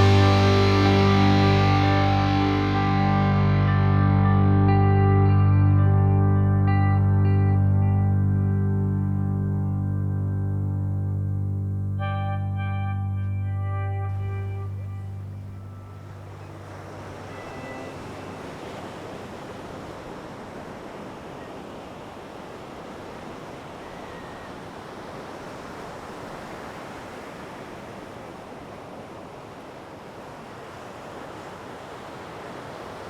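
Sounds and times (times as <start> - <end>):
sea waves: 0.0 - 4.5, 14.1 - 33.0
faint background music: 0.0 - 19.1
wind: 0.0 - 33.0.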